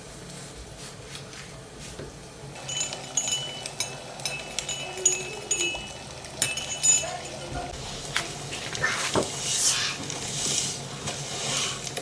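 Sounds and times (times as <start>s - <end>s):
glass clinking: 2.6s - 7.7s.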